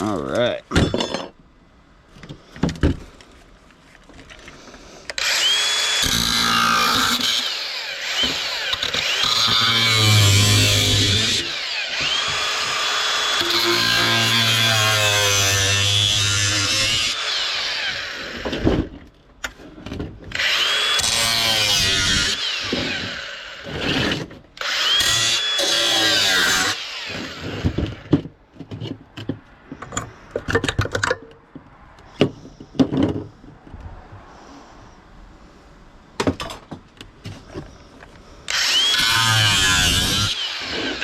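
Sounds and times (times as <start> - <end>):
power tool spinning up: 5.2 - 14.8, 20.3 - 28.0, 38.5 - 41.0.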